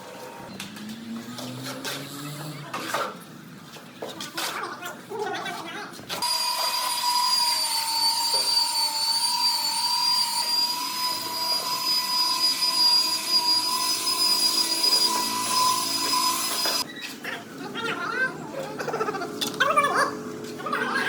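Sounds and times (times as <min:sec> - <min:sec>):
power tool motor whining: 0:06.2 - 0:16.9.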